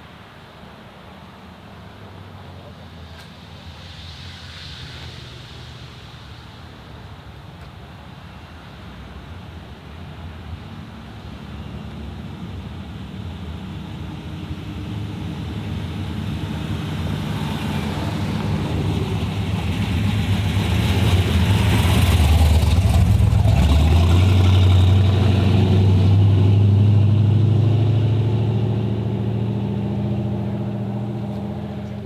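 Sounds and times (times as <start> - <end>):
car driving past: 14.2 - 32.0.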